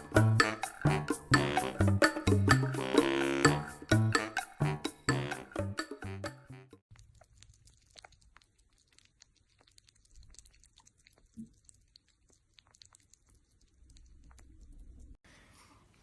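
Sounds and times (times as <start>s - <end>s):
music: 0.0s - 6.8s
small animals licking and eating: 6.9s - 15.2s.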